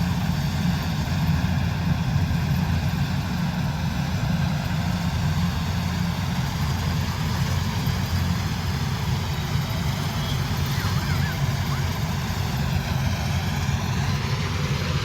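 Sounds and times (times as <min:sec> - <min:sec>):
diesel engine running: 0:05.1 - 0:15.0.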